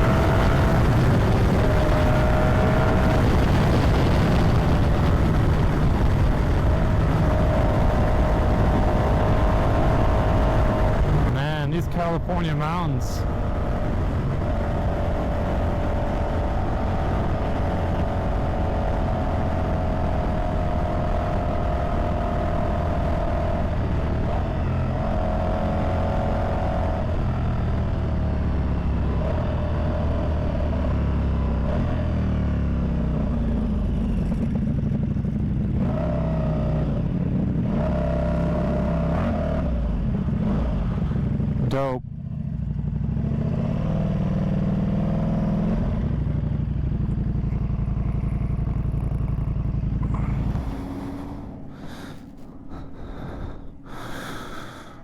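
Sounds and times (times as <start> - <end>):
motorcycle engine running: 0.0 - 54.9
wind rushing: 50.0 - 55.0.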